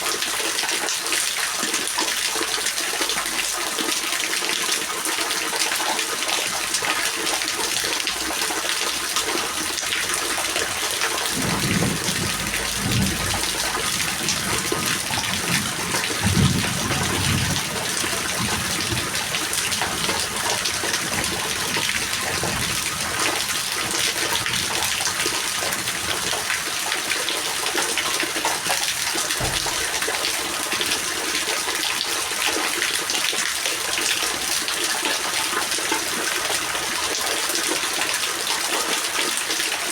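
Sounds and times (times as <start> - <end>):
heavy rain: 0.0 - 39.9
low rumbles: 10.4 - 24.8.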